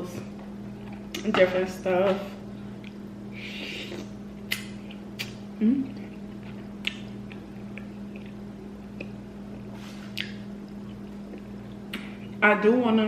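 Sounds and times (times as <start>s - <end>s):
steady low hum: 0.0s - 13.0s
wet chewing mouth smacks: 3.6s - 12.4s.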